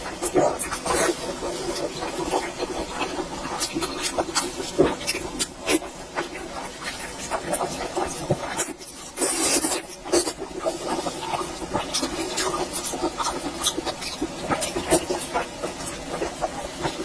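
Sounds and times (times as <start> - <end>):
wet chewing and lip smacks: 11.2 - 16.3.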